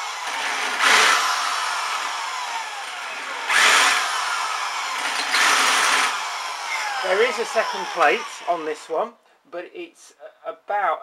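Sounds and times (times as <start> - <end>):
electric drill grinding metal: 0.0 - 8.9
drill whine falling in pitch: 2.0 - 8.6.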